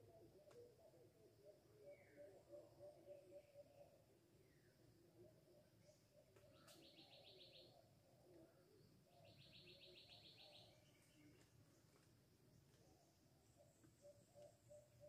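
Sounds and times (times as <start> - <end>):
faint click: 0.4 - 0.6, 6.4 - 6.9.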